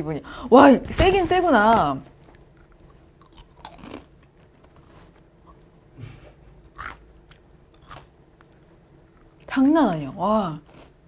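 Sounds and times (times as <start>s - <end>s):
faint room hum: 0.0s - 11.0s
person chewing crunchy cereal: 2.2s - 5.6s, 6.7s - 9.5s, 10.6s - 11.0s.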